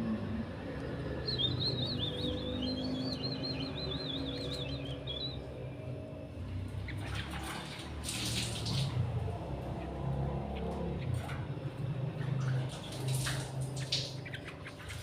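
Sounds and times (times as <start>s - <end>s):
bird warbling trill: 1.2s - 5.6s.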